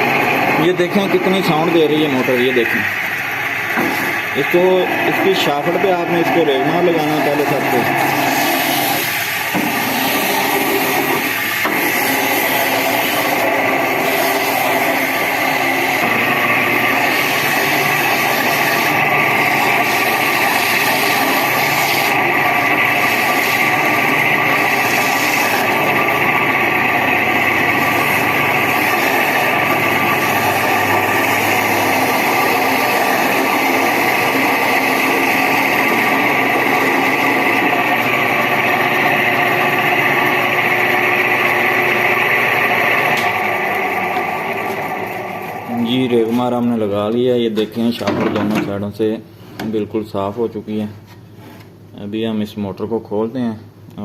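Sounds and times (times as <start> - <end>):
fan motor with worn bearings: 0.0 - 46.5
sandpaper rasping on spinning shaft: 3.9 - 39.7.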